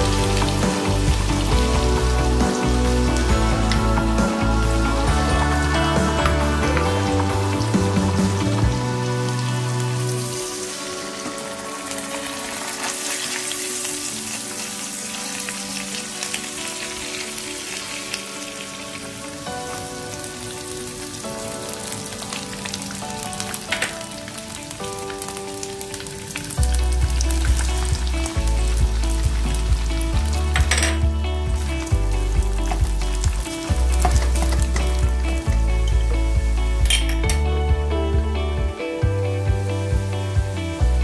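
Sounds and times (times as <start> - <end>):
background music with bass beat: 0.0 - 10.4, 26.6 - 41.0
oil sizzling in a wok: 0.0 - 38.2.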